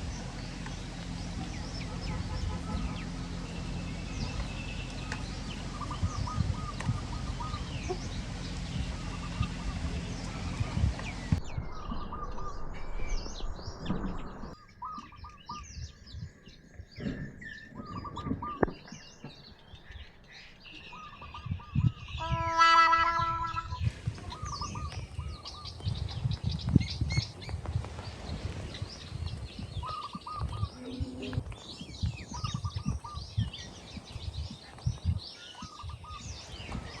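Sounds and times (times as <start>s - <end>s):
small birds chirping: 0.0s - 37.0s
short repeating bird call: 20.8s - 25.0s
loud call of domestic fowl: 22.2s - 23.8s.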